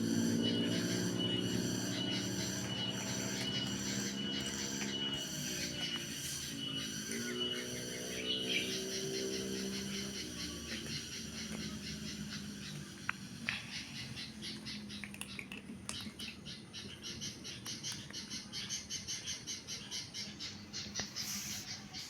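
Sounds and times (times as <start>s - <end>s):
high-pitched chirping: 0.0s - 14.4s.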